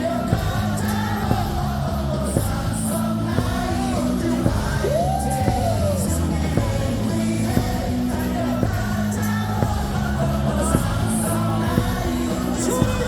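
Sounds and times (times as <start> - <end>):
crowd singing and shouting: 0.0 - 13.0
stadium music over loudspeakers: 0.0 - 13.0.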